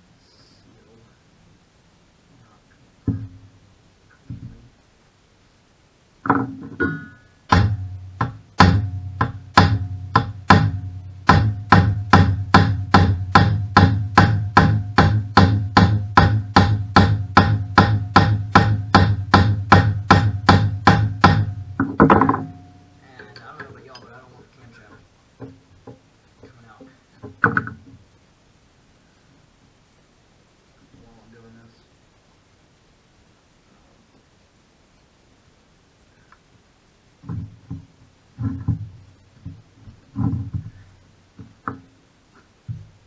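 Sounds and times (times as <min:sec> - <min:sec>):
hammer on metal: 0:06.3 - 0:24.1.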